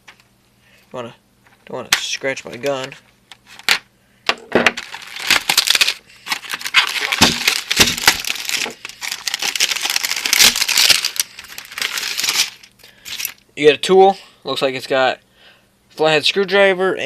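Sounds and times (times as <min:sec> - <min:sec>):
packaging crinkling and rustling: 0:04.7 - 0:13.4.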